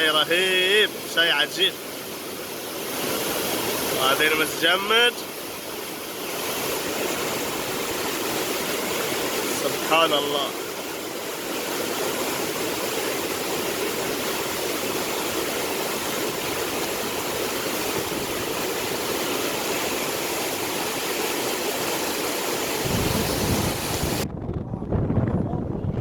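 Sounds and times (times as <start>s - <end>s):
waterfall rushing into river: 0.0s - 24.2s
wind rumble on microphone: 22.8s - 26.0s.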